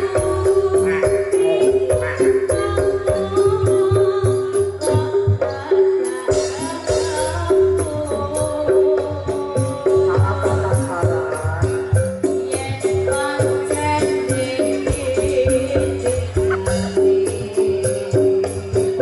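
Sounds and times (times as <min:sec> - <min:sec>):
drums: 0:00.0 - 0:19.0
high melody line: 0:10.4 - 0:19.0.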